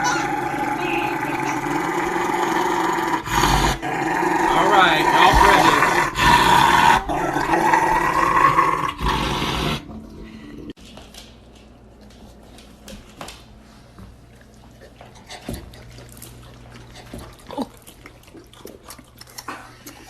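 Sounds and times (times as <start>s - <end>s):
dog growling: 0.0s - 10.4s.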